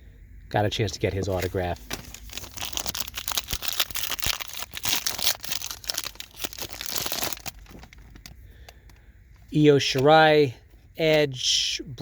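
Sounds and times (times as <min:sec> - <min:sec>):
wrapper crinkling and tearing: 0:01.8 - 0:08.4.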